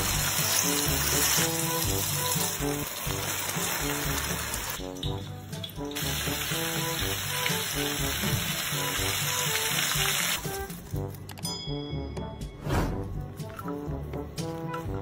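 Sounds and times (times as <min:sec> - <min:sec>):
paste sizzling in hot oil: 0:00.0 - 0:10.8
background music: 0:00.0 - 0:15.0.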